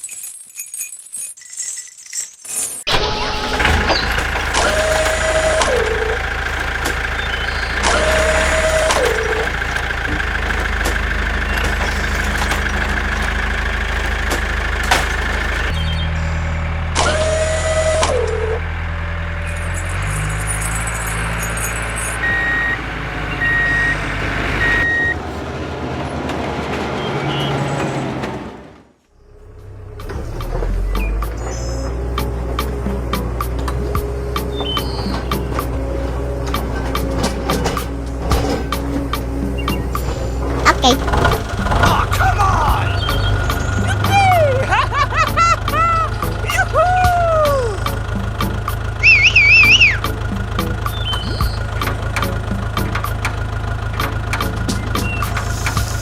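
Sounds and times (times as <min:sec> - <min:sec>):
engine bursts with falling tone: 0:02.9 - 0:56.0
small tractor engine running: 0:02.9 - 0:56.0
short reversing beeps: 0:49.0 - 0:50.1.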